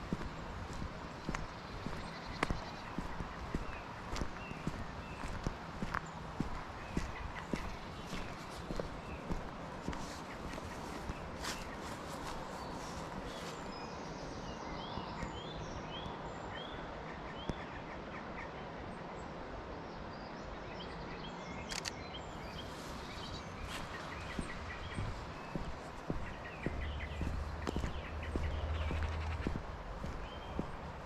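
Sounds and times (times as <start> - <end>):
footsteps: 0.0 - 13.7, 22.6 - 31.0
wild birds chirping: 0.0 - 31.0
sharp click: 21.7 - 22.0.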